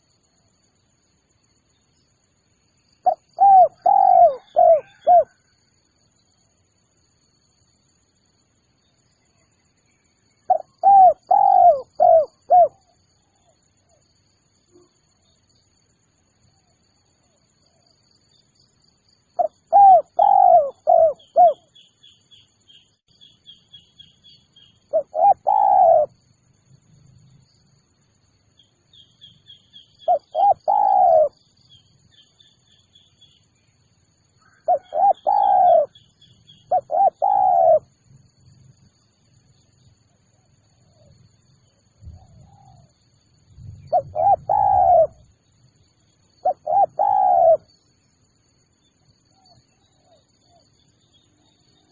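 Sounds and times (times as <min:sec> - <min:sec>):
faint high chirps: 0:00.0 - 0:51.9
dove cooing: 0:03.0 - 0:05.4, 0:10.5 - 0:12.8, 0:19.4 - 0:21.7, 0:24.9 - 0:26.2, 0:30.1 - 0:31.4, 0:34.5 - 0:37.9, 0:43.9 - 0:45.2, 0:46.4 - 0:47.7.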